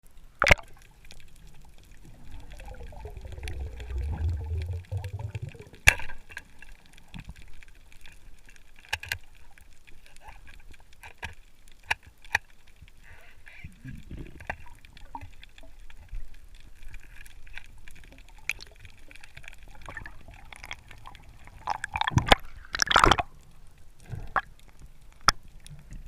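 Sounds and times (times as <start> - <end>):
water gurgling and bubbling: 1.5 - 5.9, 18.2 - 23.4
low rumble: 2.0 - 5.8.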